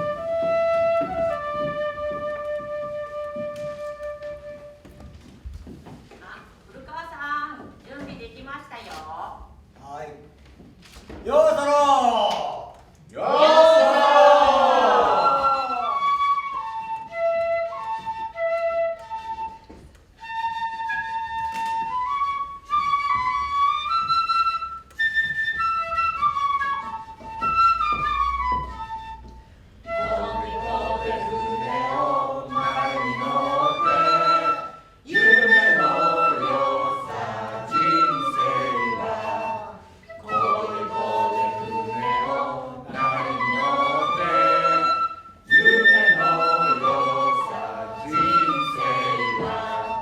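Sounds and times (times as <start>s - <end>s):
flute playing slow melody: 0.0s - 5.3s, 13.5s - 50.0s
group of voices singing: 13.2s - 16.0s, 29.9s - 50.0s.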